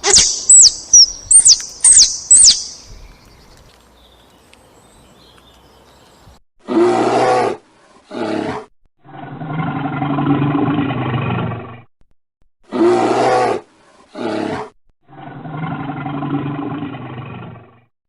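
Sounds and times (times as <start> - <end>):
animal roaring: 6.6 - 11.9, 12.7 - 17.9.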